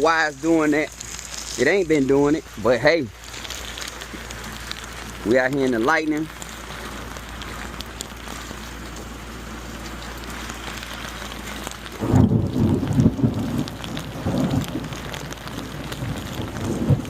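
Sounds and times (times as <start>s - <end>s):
steady rain falling: 0.0s - 17.0s
thunder rumbling: 4.2s - 17.0s.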